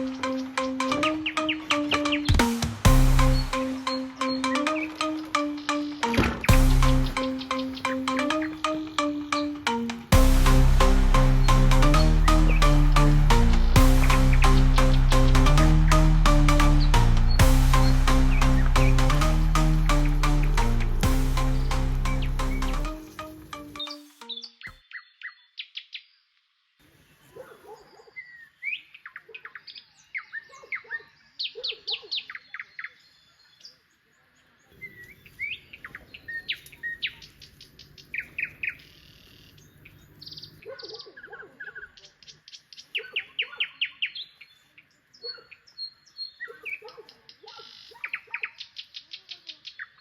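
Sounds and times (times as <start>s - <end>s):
birds chirping: 0.0s - 24.8s.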